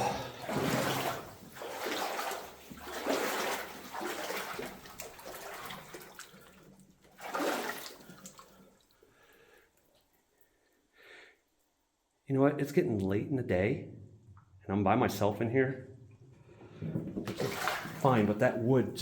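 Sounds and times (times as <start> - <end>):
boots wading through water: 0.0 - 9.0, 17.3 - 19.0.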